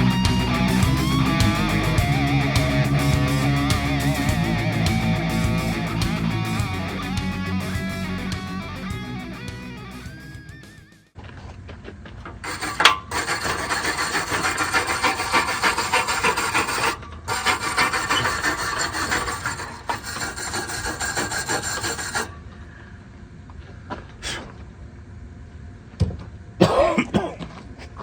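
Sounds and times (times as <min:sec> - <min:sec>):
rasping strokes on metal: 0:12.4 - 0:22.4.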